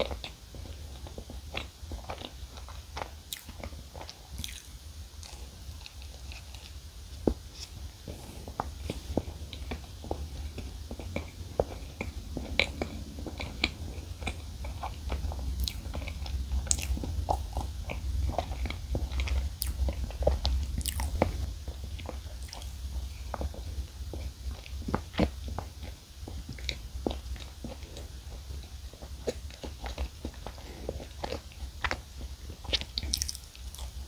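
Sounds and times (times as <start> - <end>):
low hum: 4.8 - 32.6
moist mouth clicks while chewing: 29.0 - 34.0
biting into chocolate snack: 32.6 - 34.0.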